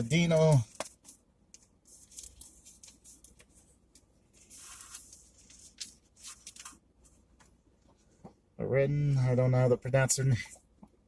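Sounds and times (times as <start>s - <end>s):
paper rustling: 1.8s - 3.7s, 4.3s - 7.2s.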